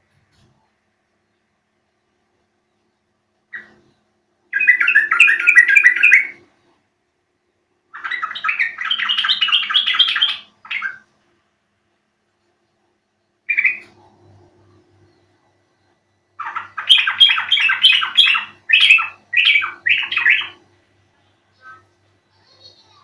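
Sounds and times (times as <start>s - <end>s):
bird warbling song: 3.5s - 6.8s, 7.9s - 11.1s, 12.4s - 23.0s.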